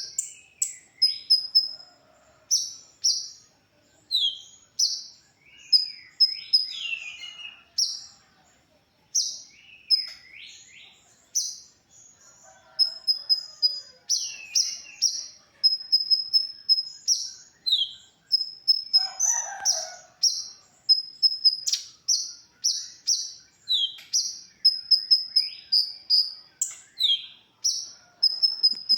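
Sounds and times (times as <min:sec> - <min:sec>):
bird chirping and trilling: 0:00.0 - 0:01.9, 0:04.1 - 0:08.1, 0:09.1 - 0:28.9.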